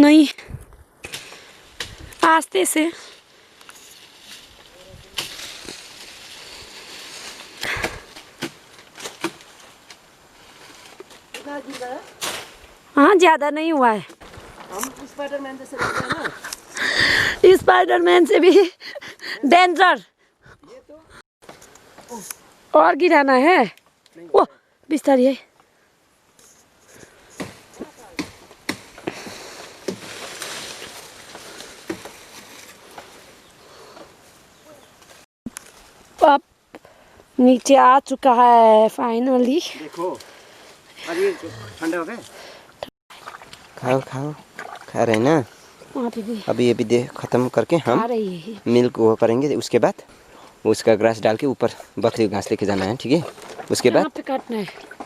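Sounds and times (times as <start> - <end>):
tree branches rustling: 0.0 - 18.6, 21.4 - 55.0
sharp cracks of branches cut: 1.0 - 2.4, 5.1 - 6.4, 7.3 - 10.0, 10.8 - 12.8, 27.3 - 33.1.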